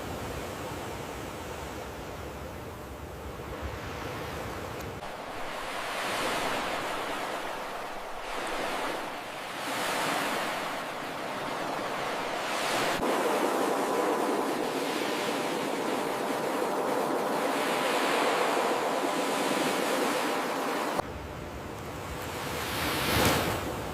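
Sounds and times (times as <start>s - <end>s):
ocean surf washing onto beach: 3.4s - 21.0s.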